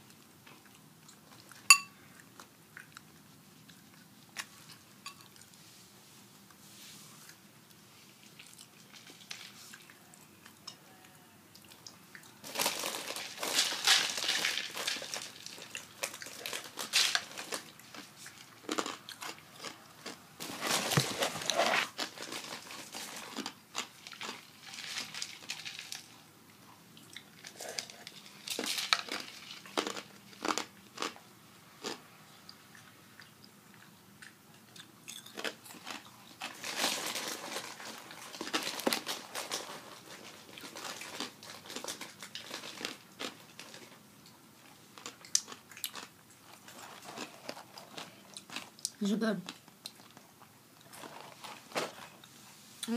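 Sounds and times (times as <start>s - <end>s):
person crunching crisp snack: 11.6s - 26.2s, 27.0s - 31.2s, 31.8s - 32.1s, 34.7s - 44.0s, 44.6s - 52.4s.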